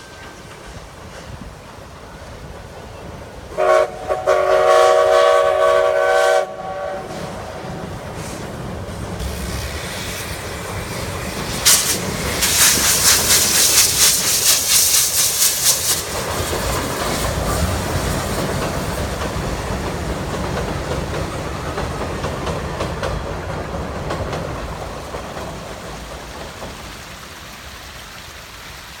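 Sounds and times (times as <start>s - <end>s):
train carriages clattering over rails: 0.0s - 3.7s, 7.1s - 28.2s
steam locomotive exhaust beats: 0.0s - 29.0s
steam burst: 3.5s - 19.6s.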